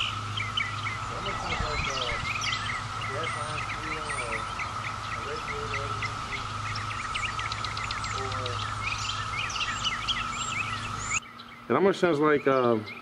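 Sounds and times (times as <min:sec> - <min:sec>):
distant cicadas droning: 0:00.0 - 0:13.0
songbirds chirping: 0:00.0 - 0:13.0.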